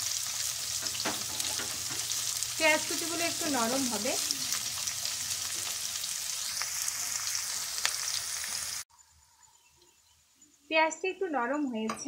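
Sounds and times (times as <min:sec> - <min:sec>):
onions sizzling in hot oil: 0:00.0 - 0:08.9.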